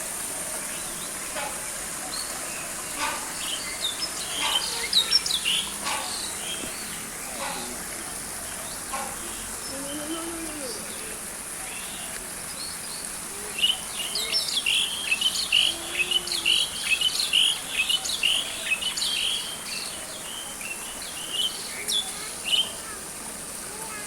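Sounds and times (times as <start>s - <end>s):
bird chirping: 2.2s - 7.7s.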